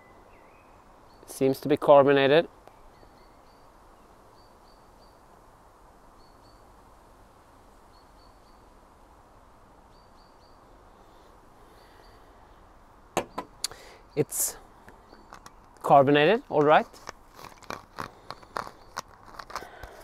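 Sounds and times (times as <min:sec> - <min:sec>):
bird chirping: 0:00.0 - 0:01.5, 0:02.6 - 0:05.3, 0:06.2 - 0:06.8, 0:07.7 - 0:08.8, 0:09.9 - 0:10.7, 0:11.6 - 0:12.6, 0:13.2 - 0:19.8
outdoor background hiss: 0:00.0 - 0:20.0.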